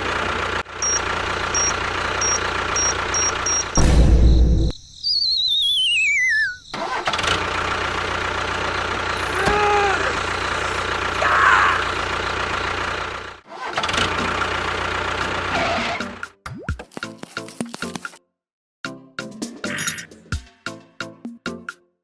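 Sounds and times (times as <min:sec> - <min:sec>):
engine-like running hum: 0:00.0 - 0:04.6, 0:06.6 - 0:15.8
wavering falling whistle: 0:04.2 - 0:07.0.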